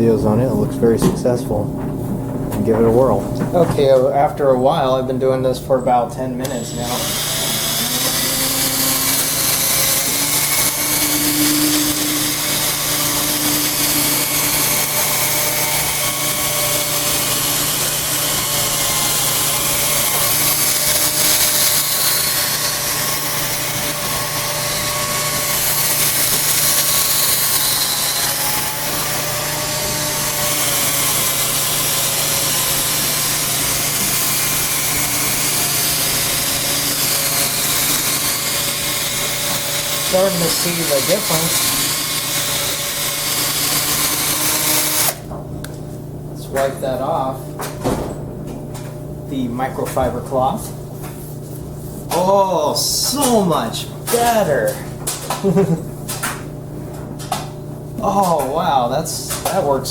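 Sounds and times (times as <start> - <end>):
electric drill buffing plastic: 6.4 - 45.3.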